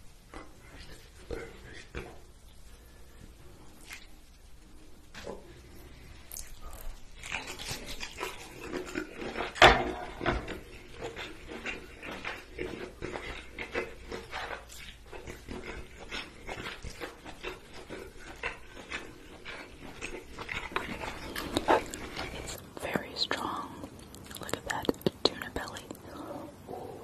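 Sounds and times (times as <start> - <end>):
person chewing with wet mouth sounds: 0.3 - 27.0
lip smacks: 11.0 - 22.9, 23.8 - 26.7.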